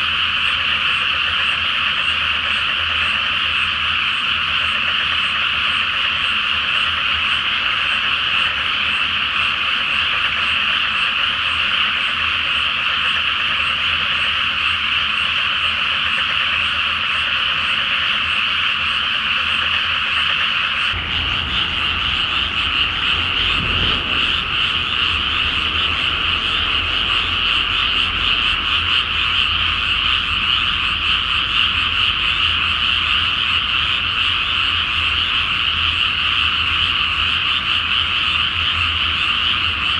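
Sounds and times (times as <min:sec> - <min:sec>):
chorus of frogs croaking: 0:00.0 - 0:39.9
faint low rumble: 0:21.0 - 0:31.4.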